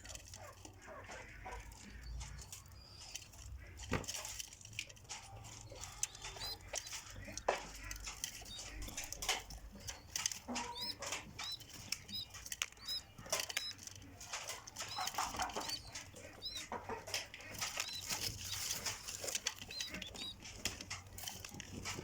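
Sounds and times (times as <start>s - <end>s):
birds chirping: 0.0s - 22.0s
rustling: 0.0s - 22.0s.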